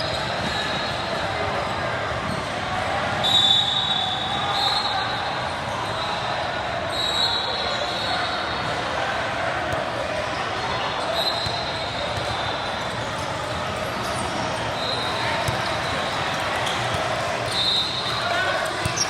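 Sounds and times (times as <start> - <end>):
voices of players and spectators: 0.0 - 19.0
basketball bouncing on court: 18.8 - 19.0.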